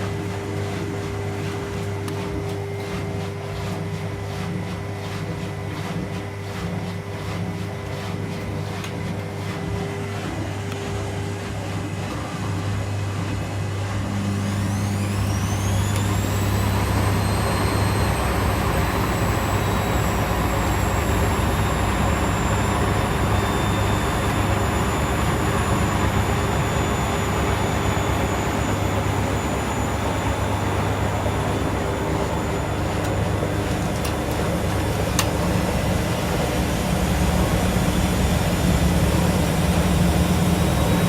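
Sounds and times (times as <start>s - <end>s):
washing machine motor whine: 0.0s - 41.0s
constant low hum: 13.1s - 41.0s.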